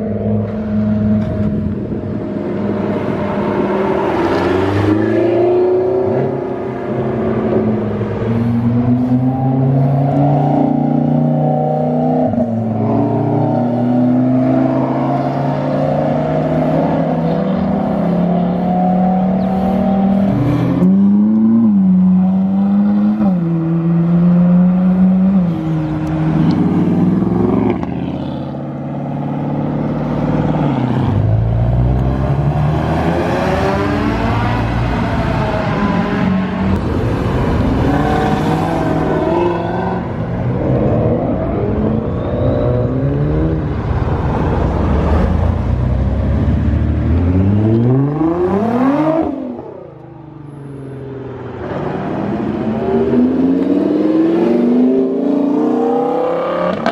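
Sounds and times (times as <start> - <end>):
car engine accelerating: 0.0 - 50.4.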